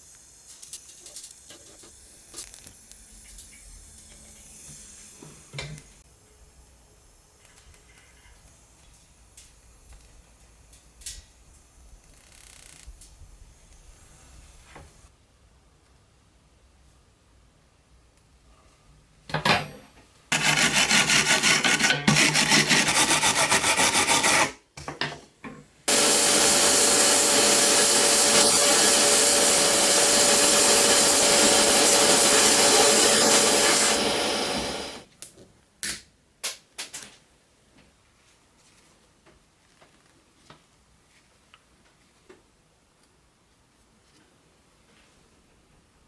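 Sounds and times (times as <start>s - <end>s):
fast even rasping: 20.3s - 24.6s
machine whirring: 20.3s - 24.6s, 25.9s - 35.0s.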